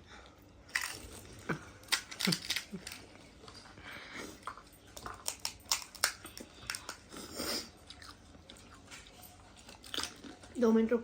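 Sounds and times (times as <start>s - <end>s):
crisp shells crunching: 0.7s - 3.1s, 5.0s - 7.0s
chewing: 0.7s - 10.6s.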